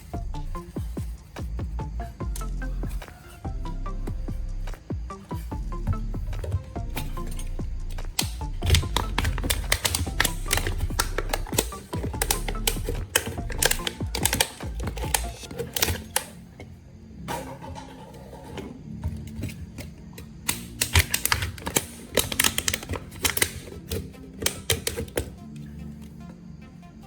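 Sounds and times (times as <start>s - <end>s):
background music: 0.0s - 27.0s
hard objects clicking and tapping: 4.7s - 26.1s.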